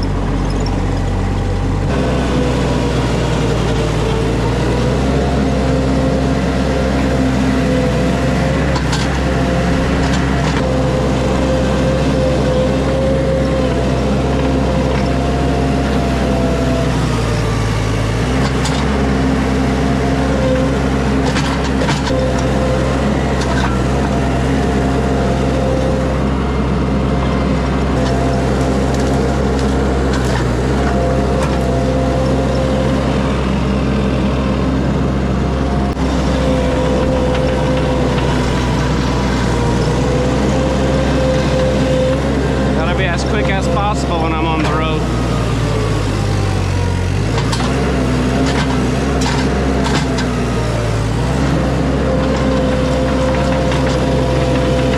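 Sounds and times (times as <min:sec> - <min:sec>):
vehicle engine droning: 0:00.0 - 0:54.9.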